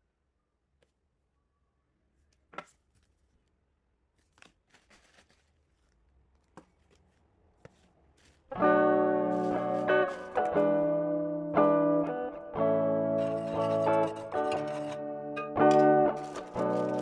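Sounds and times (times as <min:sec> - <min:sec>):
guitar music: 0:08.5 - 0:17.0.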